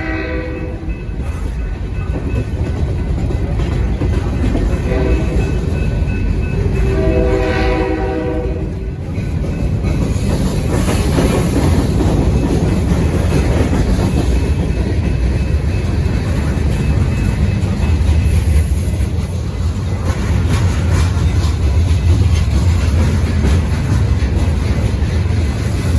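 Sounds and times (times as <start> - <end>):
train horn blast: 0.0 - 1.0, 4.8 - 5.6, 6.8 - 8.8
train rumbling past: 0.0 - 25.9
train wheels clickety-clack: 0.0 - 25.9.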